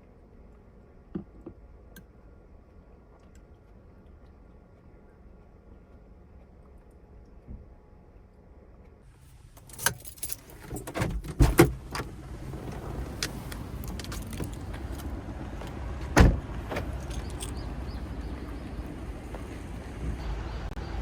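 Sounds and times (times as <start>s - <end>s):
keys jangling: 9.6s - 11.0s, 13.2s - 15.1s, 16.9s - 17.8s
car door shutting: 9.8s - 17.6s.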